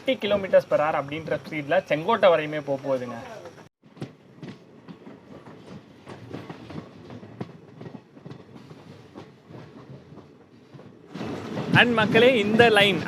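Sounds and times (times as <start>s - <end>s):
train running on track: 0.0s - 13.0s
wheels clattering over rails: 3.4s - 13.0s.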